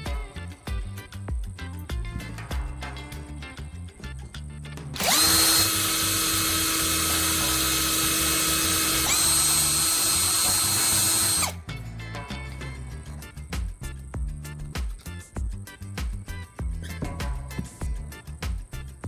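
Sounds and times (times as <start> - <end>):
power tool whirring whine: 5.0 - 11.6.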